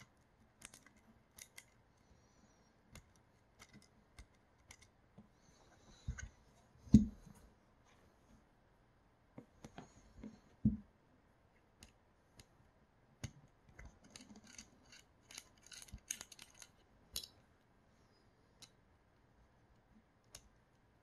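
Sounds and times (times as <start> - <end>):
tools clicking and scraping: 13.7 - 17.4.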